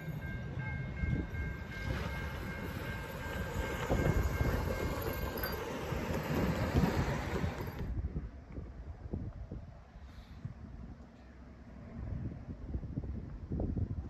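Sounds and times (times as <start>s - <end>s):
faint repeated ringing: 0.0s - 8.0s
train wheels rumbling on rails: 0.0s - 9.5s.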